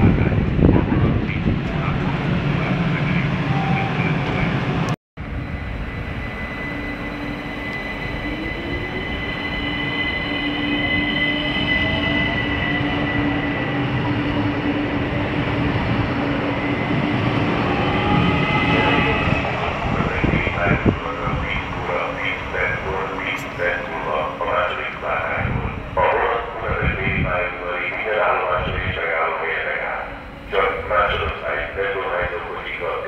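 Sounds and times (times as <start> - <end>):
train wheels rumbling: 0.0 - 33.0
steady high whine: 16.2 - 33.0.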